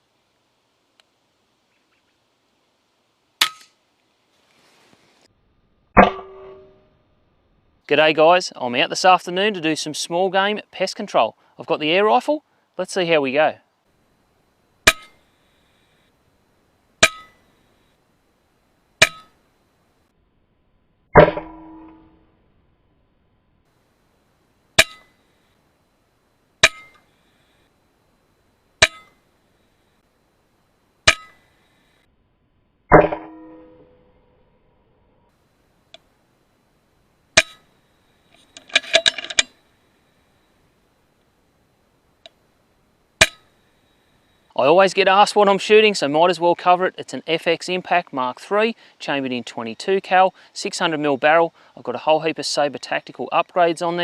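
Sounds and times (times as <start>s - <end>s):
sharp metallic clangs: 6.0s - 7.0s, 14.8s - 15.2s, 17.0s - 17.5s, 19.0s - 19.4s, 21.2s - 22.3s, 24.8s - 25.2s, 26.6s - 27.1s, 28.8s - 29.2s, 31.1s - 31.5s, 32.9s - 34.3s, 37.4s - 37.7s, 38.4s - 39.6s, 43.2s - 43.5s.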